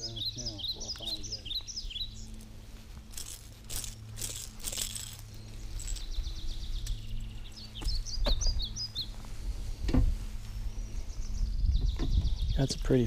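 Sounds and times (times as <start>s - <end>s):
birds chirping: 0.0s - 13.0s
steady low hum: 0.0s - 13.0s
clothing and hands rustling: 2.2s - 8.0s.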